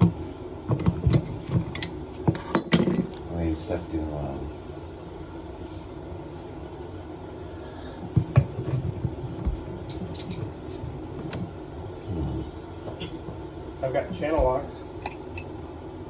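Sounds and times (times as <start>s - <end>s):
steady low hum: 0.0s - 16.0s
metal hand tools clinking: 15.0s - 15.5s.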